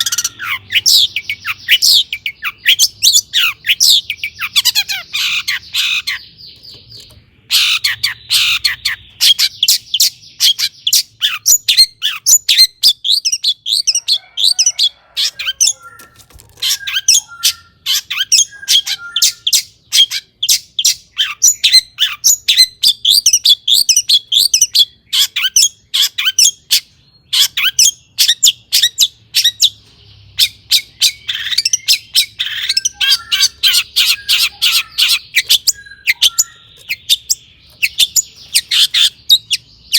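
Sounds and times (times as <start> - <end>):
shrike chattering song: 27.4 - 39.9.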